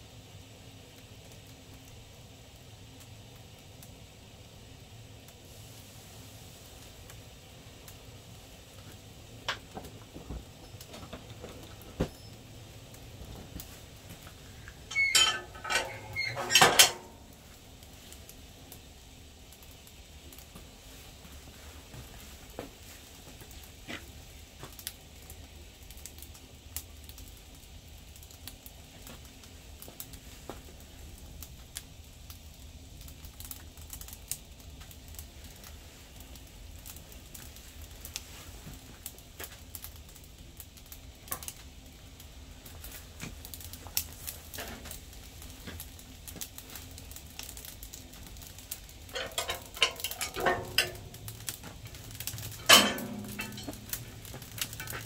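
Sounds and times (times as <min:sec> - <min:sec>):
firewood crackling in a stove: 0:00.0 - 0:55.0
knocks and metallic clatter: 0:14.7 - 0:17.3, 0:49.1 - 0:55.0.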